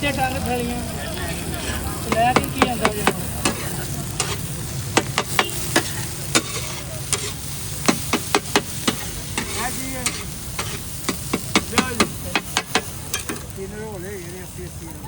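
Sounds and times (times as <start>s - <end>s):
food sizzling in oil: 0.0s - 15.0s
metal spatula scraping a pan: 1.6s - 13.5s.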